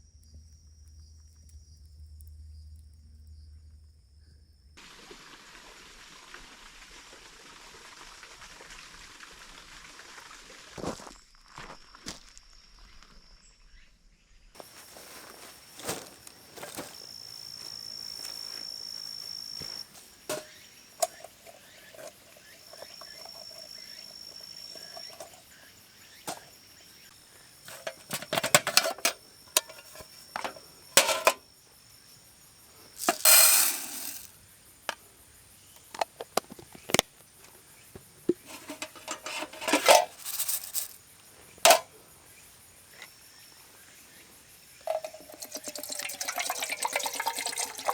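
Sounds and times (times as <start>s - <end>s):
camp gear clattering and rustling: 14.6s - 26.8s, 27.4s - 31.4s, 33.0s - 34.3s, 35.7s - 43.2s, 44.8s - 47.6s
insects singing: 14.6s - 47.9s
scraping: 19.6s - 25.6s, 26.3s - 26.6s, 27.7s - 31.4s, 33.0s - 34.3s, 38.3s - 41.0s, 41.7s - 41.9s.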